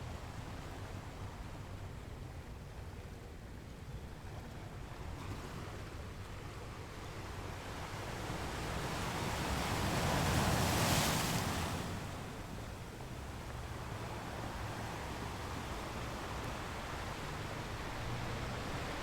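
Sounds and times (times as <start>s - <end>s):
ocean waves breaking: 8.0s - 19.0s.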